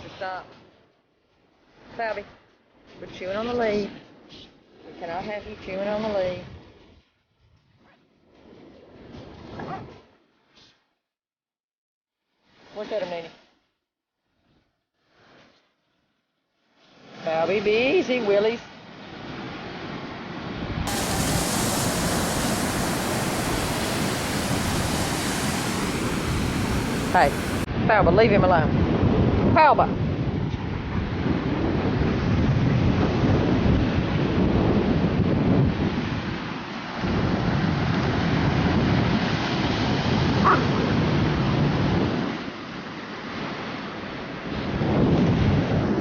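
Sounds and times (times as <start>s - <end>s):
ocean surf rushing: 20.9s - 27.7s
wind buffeting microphone: 20.9s - 27.7s.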